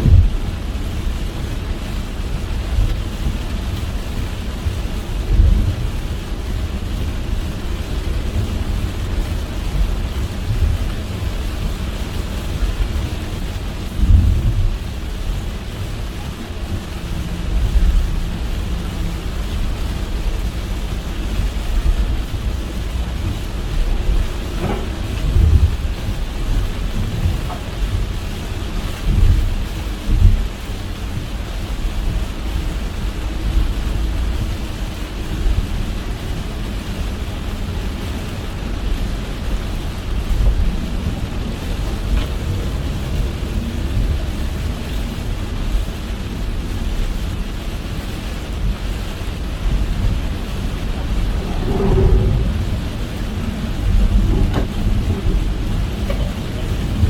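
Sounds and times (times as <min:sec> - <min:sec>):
rain and tyres on wet road: 0:00.0 - 0:57.0
road rumble: 0:00.0 - 0:57.0.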